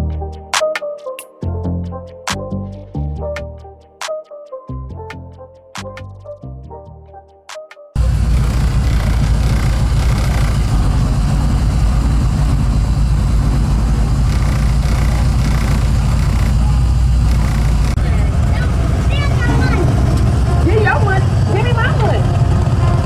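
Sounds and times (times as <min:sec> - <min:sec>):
music: 0:00.0 - 0:08.0, 0:18.0 - 0:23.0
car engine idling: 0:08.0 - 0:23.0.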